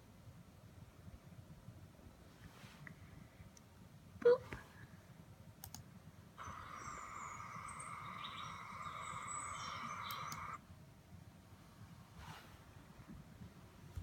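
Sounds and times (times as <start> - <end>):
steady background noise: 0.0 - 14.0
high bird chirps: 6.4 - 10.6.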